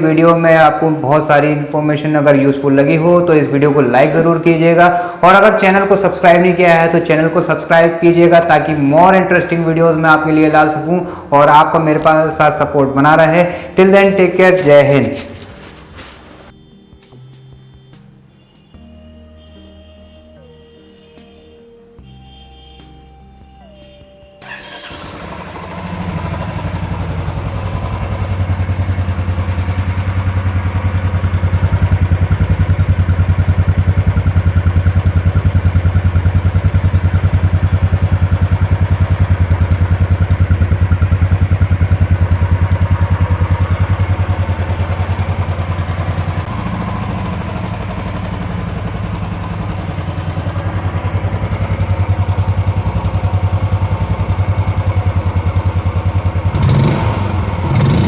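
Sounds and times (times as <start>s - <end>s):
motorcycle engine deep exhaust beat: 25.8s - 58.0s.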